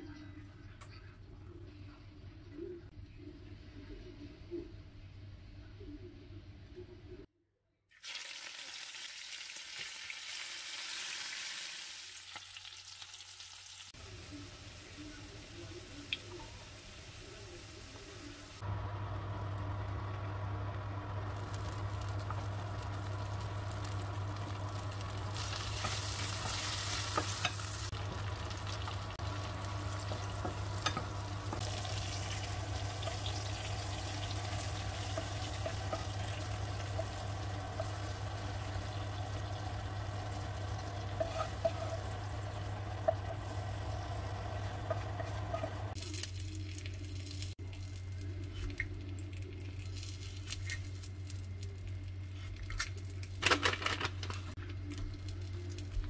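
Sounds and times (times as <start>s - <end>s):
vegetables sizzling in oil: 8.0s - 48.2s
low hum: 18.6s - 46.0s.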